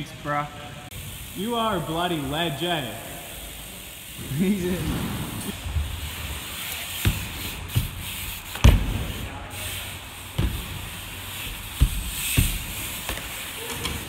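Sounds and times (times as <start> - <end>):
bike tyres rolling on ground: 0.9 - 14.0
knocks and thuds from bike: 7.0 - 9.2, 10.4 - 14.0.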